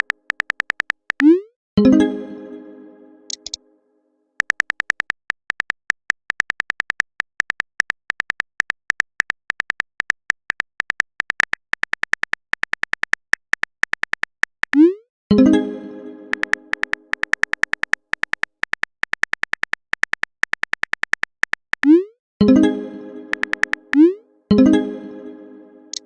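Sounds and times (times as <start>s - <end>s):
keyboard typing clicks: 0.0s - 1.5s, 3.3s - 3.6s, 4.4s - 15.0s, 16.3s - 22.1s, 23.3s - 24.2s.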